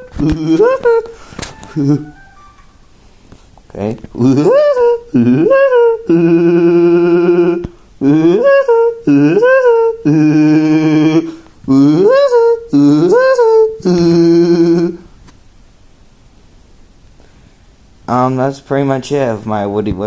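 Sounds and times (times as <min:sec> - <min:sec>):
person doing bird call impression: 0:00.0 - 0:02.7, 0:04.2 - 0:15.0.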